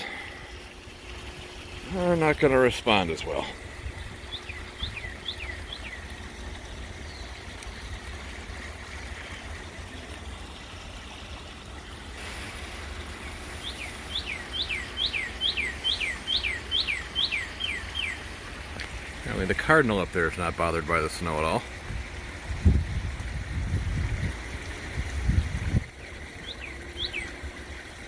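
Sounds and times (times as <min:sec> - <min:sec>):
cardinal whistling song: 0:13.6 - 0:18.2.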